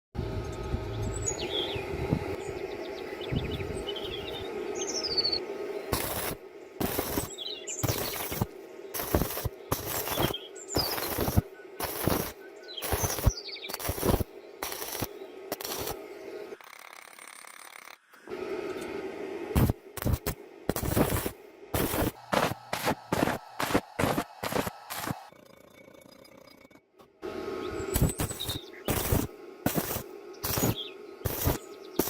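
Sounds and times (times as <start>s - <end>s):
birds chirping: 0.2s - 16.6s, 27.5s - 32.0s
steady hum: 0.2s - 16.6s, 18.2s - 25.3s, 27.1s - 32.0s
arc welding crackling: 5.5s - 18.0s, 19.5s - 25.3s, 27.9s - 32.0s.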